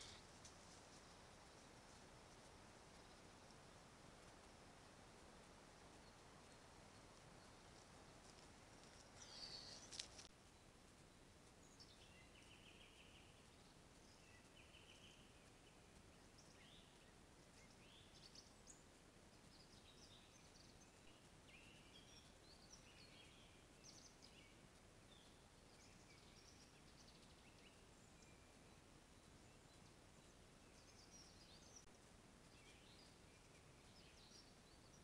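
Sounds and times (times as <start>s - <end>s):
faint birds chirping: 0.0s - 35.0s
steady low hiss: 0.0s - 35.0s.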